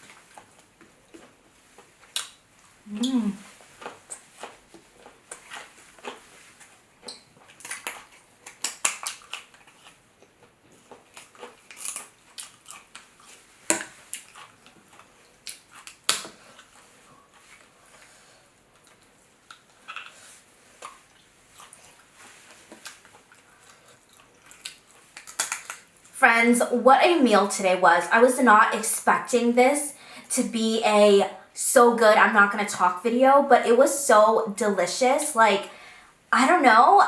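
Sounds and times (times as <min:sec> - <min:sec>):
crab shell cracking and crunching: 0:07.4 - 0:16.8, 0:22.8 - 0:26.0.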